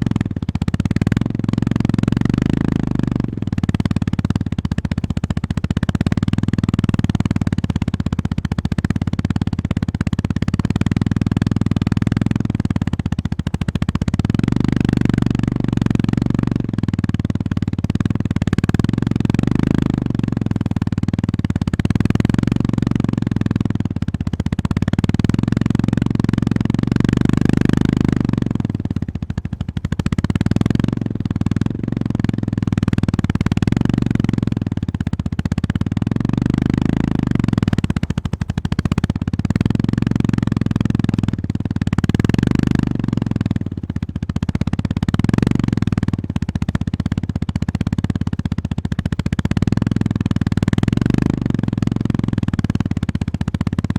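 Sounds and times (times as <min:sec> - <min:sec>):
motorcycle engine running under load: 0:00.0 - 0:53.9.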